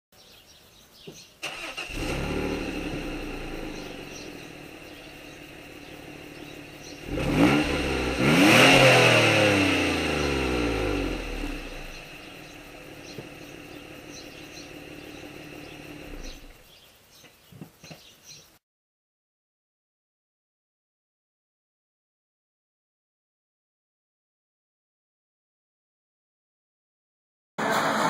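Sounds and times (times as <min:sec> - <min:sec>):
car engine revving and idling: 0:01.4 - 0:16.6, 0:27.6 - 0:28.0.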